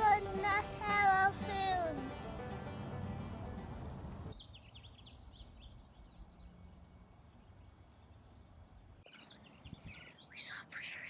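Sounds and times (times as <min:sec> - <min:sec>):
low background rumble: 0:00.0 - 0:04.4
small birds chirping: 0:03.1 - 0:11.0.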